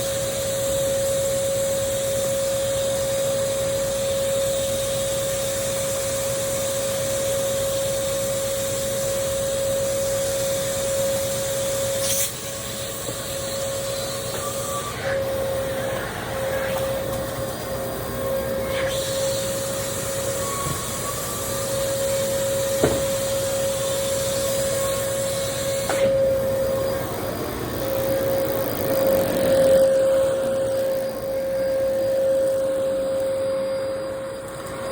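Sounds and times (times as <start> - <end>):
vacuum cleaner running: 0.0 - 34.9
sharp knock: 22.8 - 23.1.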